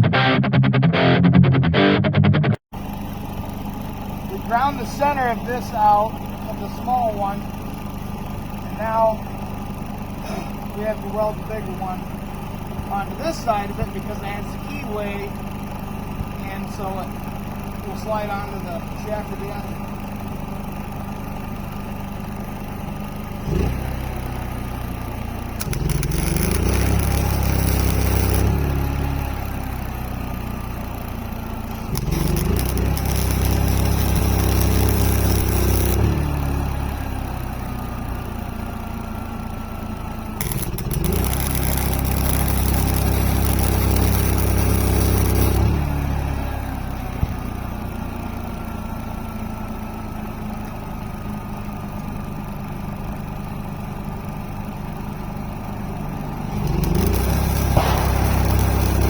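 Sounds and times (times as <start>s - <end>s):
welder engine: 2.8s - 59.0s
crackling welding arc hiss: 24.7s - 38.4s, 40.2s - 46.6s, 56.4s - 59.0s.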